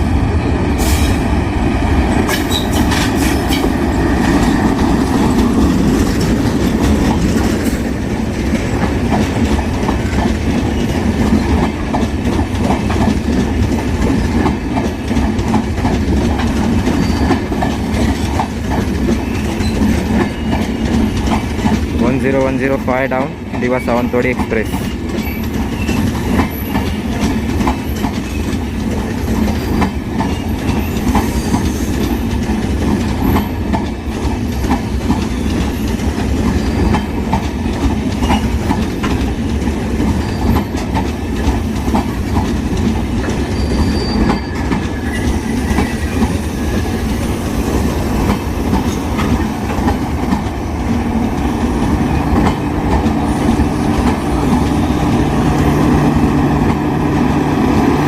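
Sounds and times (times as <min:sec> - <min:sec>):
train coaches rumbling over rail joints: 0:00.0 - 0:58.0
faint wheel squeal: 0:43.5 - 0:46.2.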